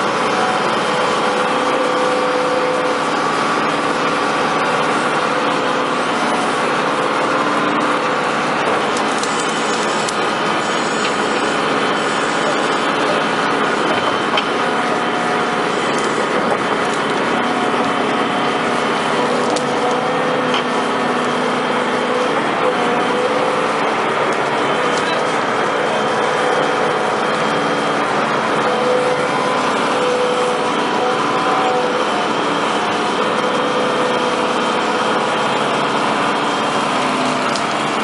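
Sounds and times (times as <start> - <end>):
construction equipment engines running: 0.0 - 38.0.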